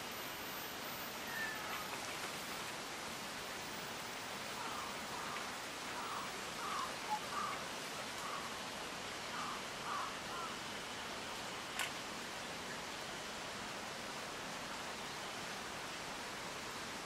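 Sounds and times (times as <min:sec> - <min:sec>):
steady outdoor hiss: 0:00.0 - 0:17.0
bird calling: 0:01.2 - 0:02.0, 0:04.6 - 0:07.6.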